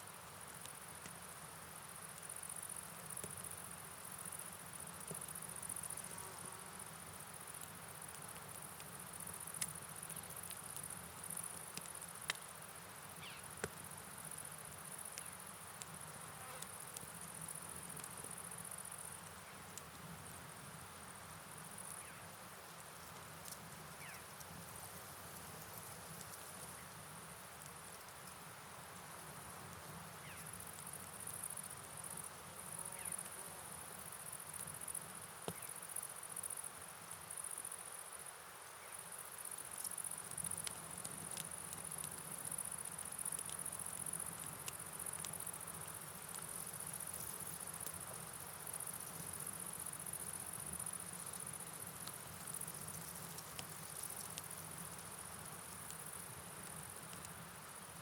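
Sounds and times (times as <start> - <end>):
light ticks: 7.6 - 12.5, 17.8 - 18.3, 23.0 - 24.6, 39.8 - 48.2, 52.0 - 54.6, 55.2 - 57.4.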